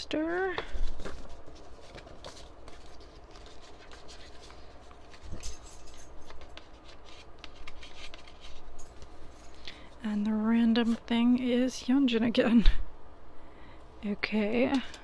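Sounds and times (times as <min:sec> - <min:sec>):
paper and card rustling: 0:00.4 - 0:10.0, 0:10.6 - 0:11.1.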